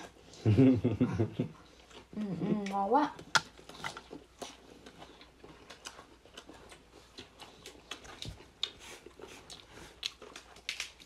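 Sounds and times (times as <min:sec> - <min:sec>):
chewing clicks and smacks: 0:03.2 - 0:11.0.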